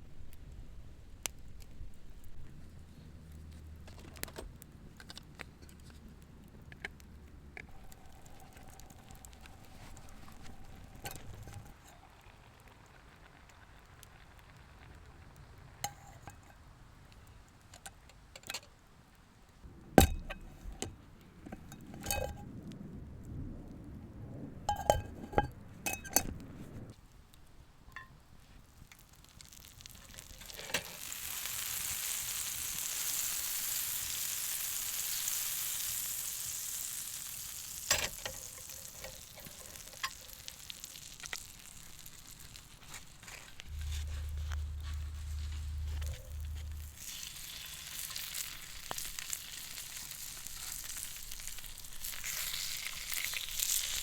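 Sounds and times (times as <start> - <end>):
food sizzling in a pan: 28.9 - 54.0.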